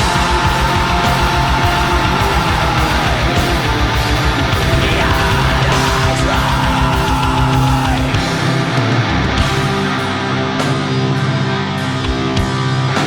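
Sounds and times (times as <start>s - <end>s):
fast drumming: 0.0s - 11.2s
black metal song: 0.0s - 13.0s
distorted guitars: 0.0s - 13.0s.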